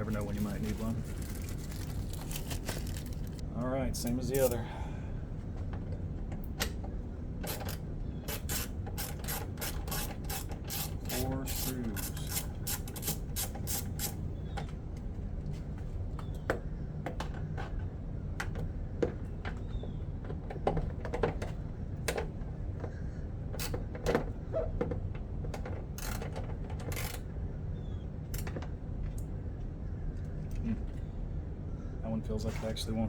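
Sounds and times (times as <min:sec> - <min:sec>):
steady low hum: 0:00.0 - 0:33.0
socket ratchet clicking: 0:07.4 - 0:14.2.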